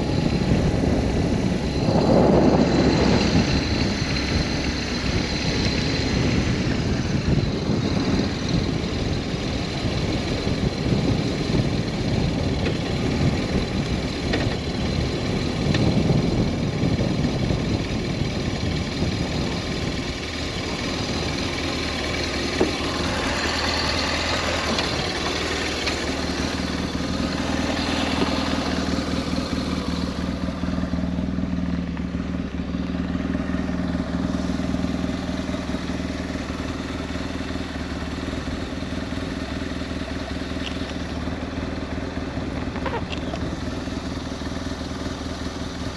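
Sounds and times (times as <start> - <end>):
wind on microphone: 0.0 - 20.2
motorcycle engine running: 0.0 - 45.9.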